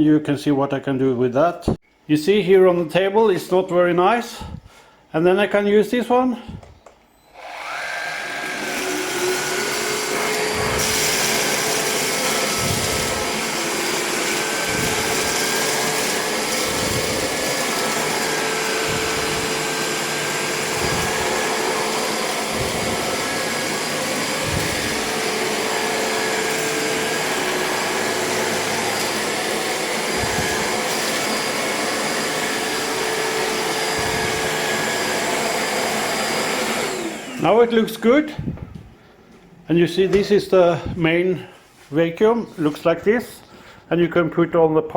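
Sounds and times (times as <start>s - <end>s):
handheld vacuum running: 7.4s - 38.6s.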